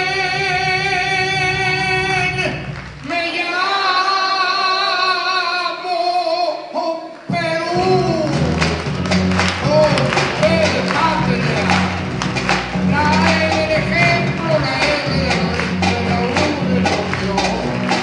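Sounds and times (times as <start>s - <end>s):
guitar accompaniment: 7.3s - 18.0s.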